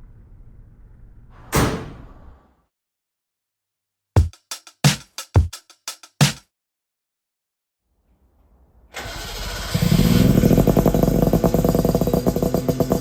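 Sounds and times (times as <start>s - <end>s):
drum fill with bass drum: 4.2s - 6.4s.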